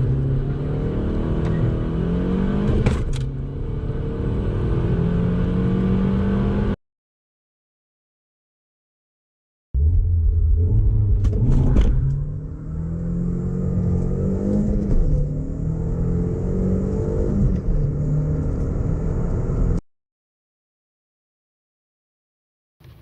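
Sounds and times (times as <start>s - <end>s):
car engine accelerating hard: 0.0s - 6.8s, 9.8s - 19.8s.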